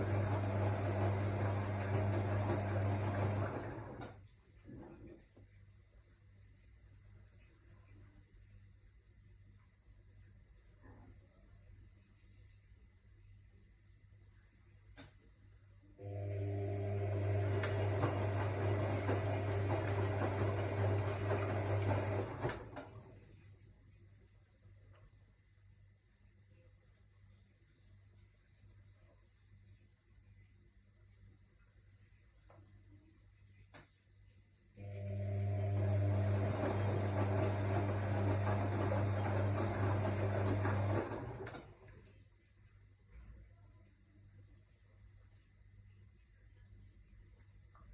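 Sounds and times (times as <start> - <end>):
washing machine hum and rushing: 0.0 - 4.2, 16.0 - 23.2, 34.8 - 41.9
faint click: 14.9 - 15.3, 33.6 - 34.2
water and laundry churning: 17.4 - 22.5, 36.0 - 41.4.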